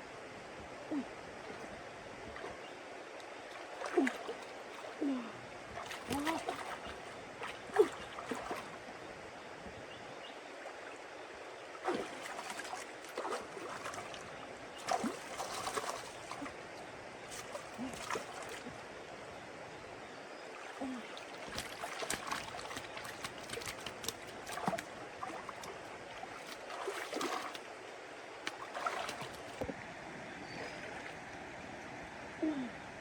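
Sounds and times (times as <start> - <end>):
running water: 0.9 - 9.2, 10.5 - 19.4, 20.4 - 29.9
short water splashes: 2.3 - 8.9, 11.7 - 18.9, 20.5 - 29.8.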